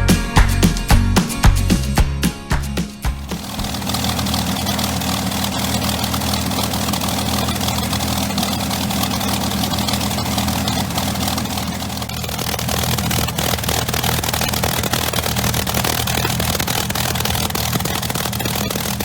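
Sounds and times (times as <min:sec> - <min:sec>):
aircraft engine running: 0:03.1 - 0:19.0.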